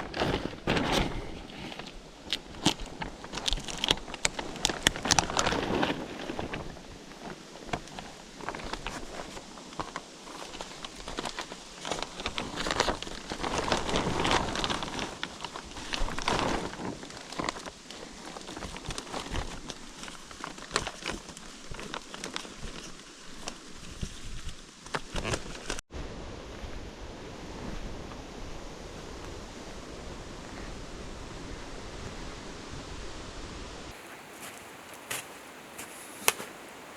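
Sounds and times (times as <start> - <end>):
leaves rustling and crackling: 0.0 - 36.9
steady outdoor hiss: 0.0 - 36.9.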